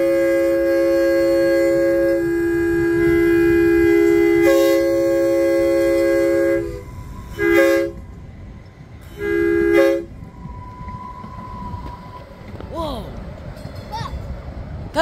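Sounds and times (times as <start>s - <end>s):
train air horn blasts: 0.0s - 8.2s, 9.0s - 11.8s.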